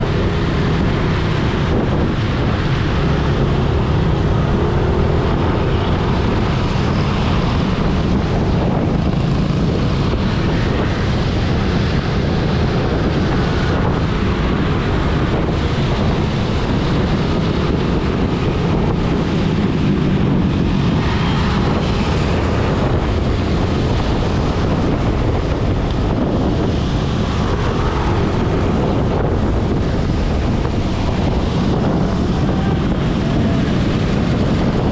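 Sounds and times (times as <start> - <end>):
motorcycle engine: 0.0 - 10.9
road noise: 0.0 - 34.9
wind buffeting microphone: 0.0 - 34.9.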